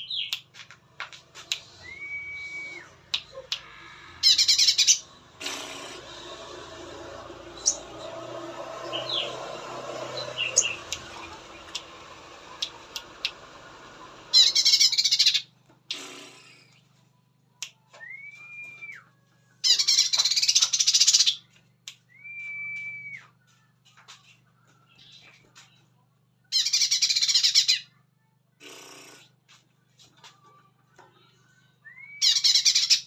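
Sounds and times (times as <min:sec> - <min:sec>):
bird chirping and chattering: 0:04.2 - 0:05.8, 0:14.3 - 0:15.4, 0:19.7 - 0:21.4.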